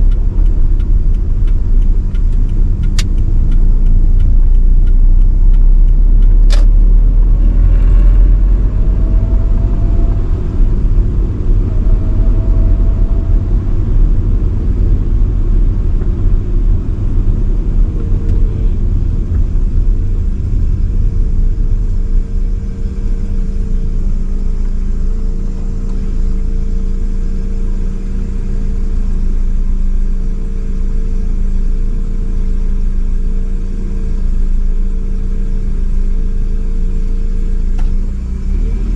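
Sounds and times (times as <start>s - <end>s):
steady drone: 0.0s - 31.2s
car engine and road noise: 0.0s - 38.9s
sharp click: 0.1s - 6.8s.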